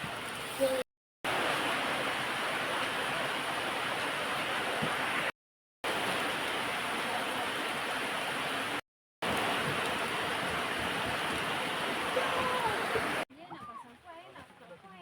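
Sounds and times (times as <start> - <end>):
heavy rain falling: 0.0 - 5.3, 5.9 - 13.2.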